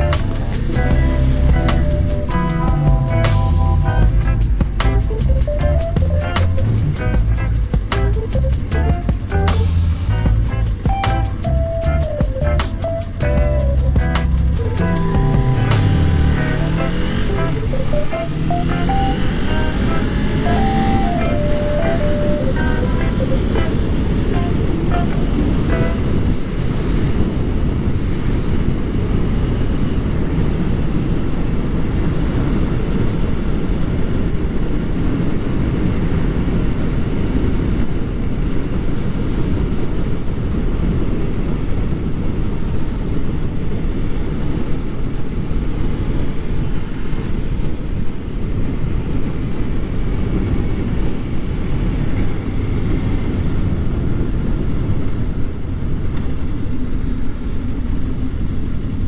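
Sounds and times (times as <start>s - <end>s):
motorcycle engine running: 0.0s - 22.8s
wind rushing on microphone: 0.0s - 59.0s.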